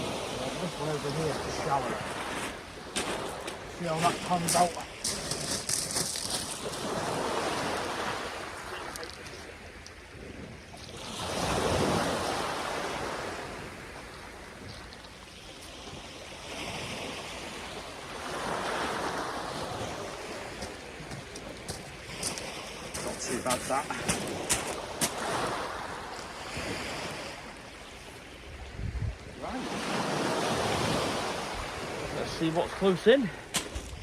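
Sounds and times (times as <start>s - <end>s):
surf breaking on beach: 29.4s - 33.9s.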